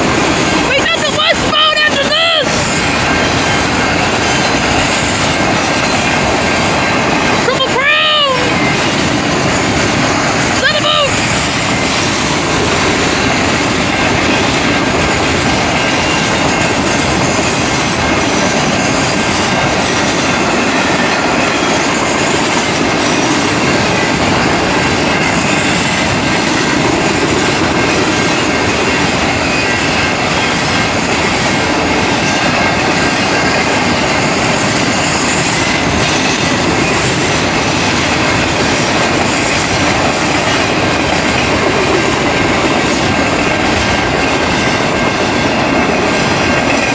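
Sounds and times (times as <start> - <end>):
train wheels rumbling on rail: 0.0 - 46.9.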